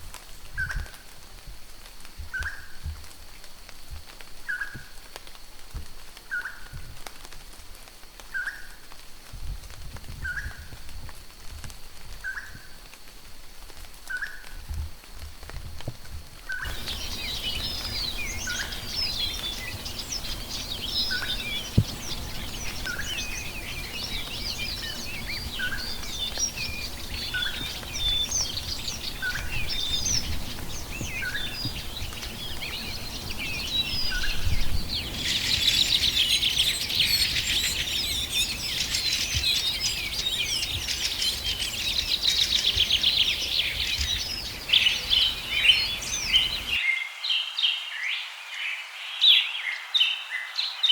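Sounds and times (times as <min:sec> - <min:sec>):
fast trilling bird chatter: 0:16.6 - 0:46.8
high bird chirps: 0:16.6 - 0:46.8
low repeated bird note: 0:16.7 - 0:35.0.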